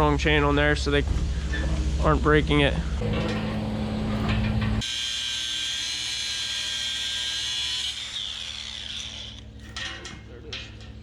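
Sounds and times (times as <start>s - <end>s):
low steady hum: 0.0s - 4.8s
angle grinder whining: 4.8s - 9.4s.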